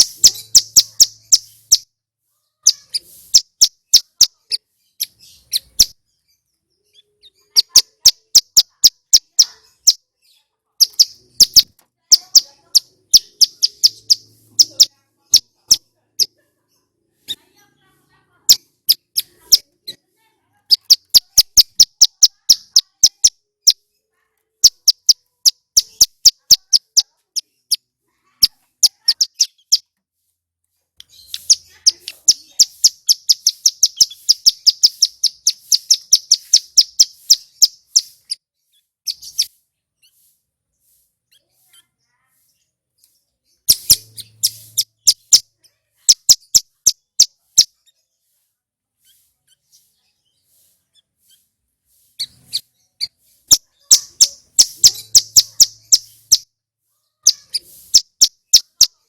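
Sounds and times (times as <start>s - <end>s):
bird calling sharp high notes: 31.2s - 38.4s.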